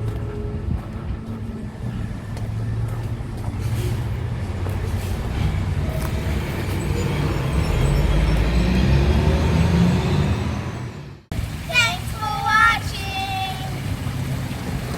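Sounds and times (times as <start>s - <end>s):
road noise: 0.0s - 14.9s.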